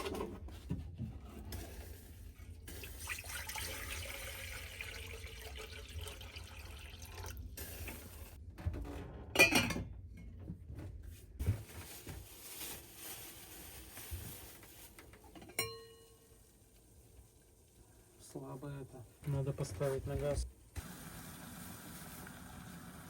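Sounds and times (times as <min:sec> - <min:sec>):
water pouring into vessel: 0:02.7 - 0:08.4.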